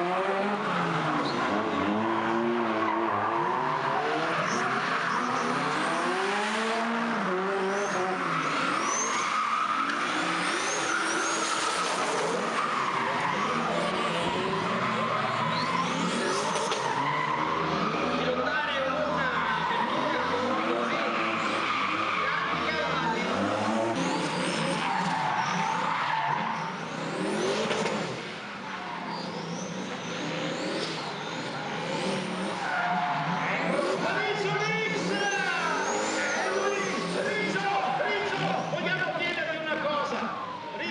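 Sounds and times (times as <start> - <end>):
car engine revving: 0.0 - 39.0
tyres squealing: 7.7 - 38.8.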